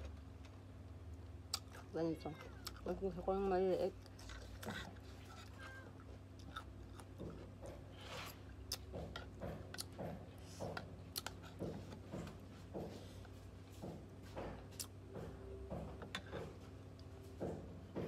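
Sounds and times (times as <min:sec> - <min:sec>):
chewing and crunching cucumber: 0:00.0 - 0:13.4.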